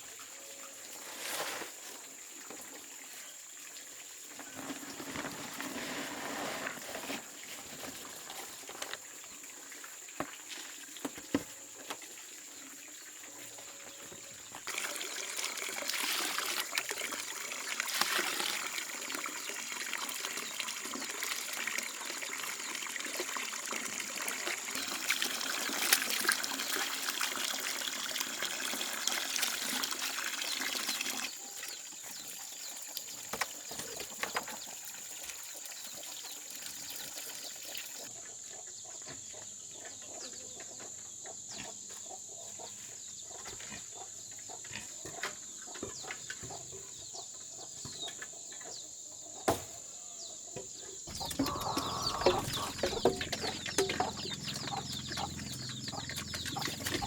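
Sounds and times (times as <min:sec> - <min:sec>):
water trickling: 0:14.2 - 0:38.1, 0:51.1 - 0:57.0.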